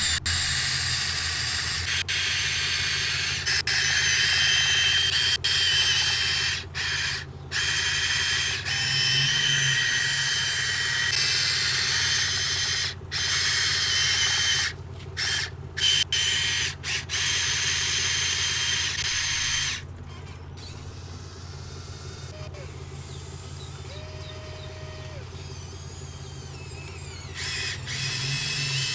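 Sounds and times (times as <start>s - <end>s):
low hum: 0.0s - 3.2s
hydraulic pump whining: 0.0s - 28.9s.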